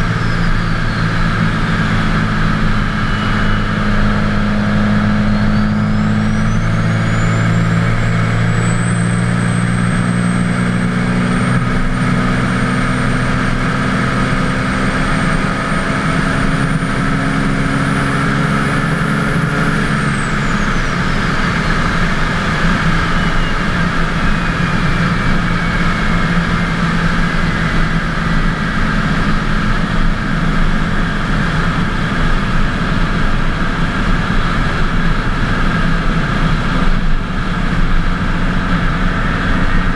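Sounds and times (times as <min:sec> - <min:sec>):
turbo whistle: 0:00.0 - 0:10.2, 0:19.3 - 0:26.6
diesel engine running: 0:00.0 - 0:39.9.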